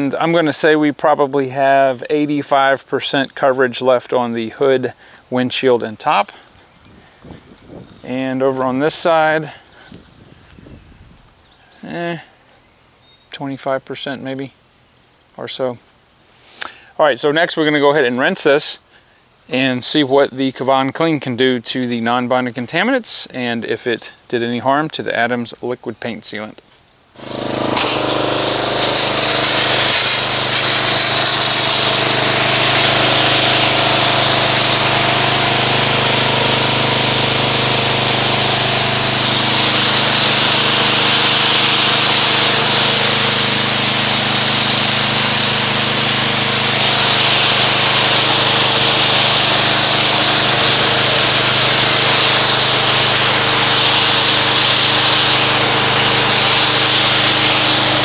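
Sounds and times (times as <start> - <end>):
pressure washer motor hum: 27.2 - 58.0
water jet hissing on car: 27.2 - 58.0.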